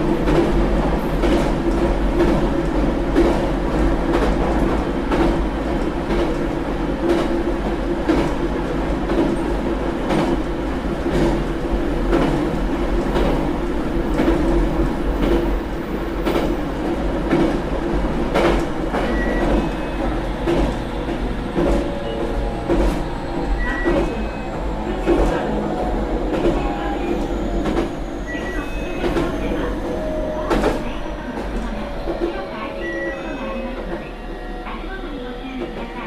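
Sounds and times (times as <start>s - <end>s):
train wheels rumbling on rail: 0.0s - 36.0s
rail-joint clicks: 18.3s - 34.1s.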